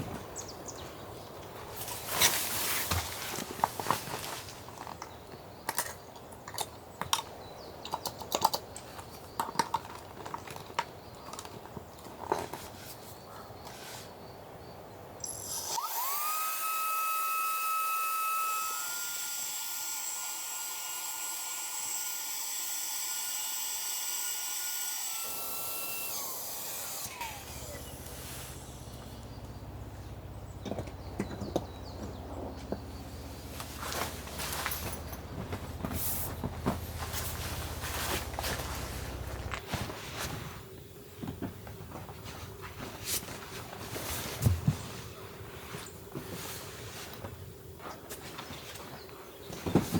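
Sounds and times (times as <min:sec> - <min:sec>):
electric air pump whining: 0:15.2 - 0:29.9, 0:33.2 - 0:39.6.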